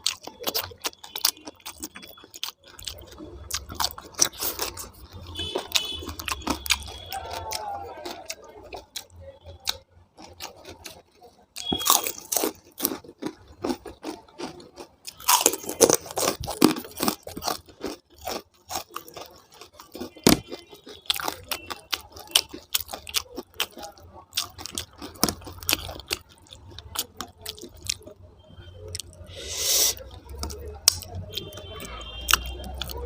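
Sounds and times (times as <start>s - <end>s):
chewing and crunching food: 0.0s - 33.0s.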